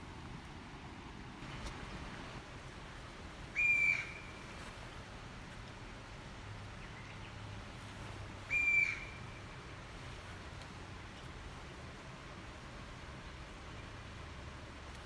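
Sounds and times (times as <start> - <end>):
bird whistled call: 3.5 - 4.4, 8.5 - 9.4.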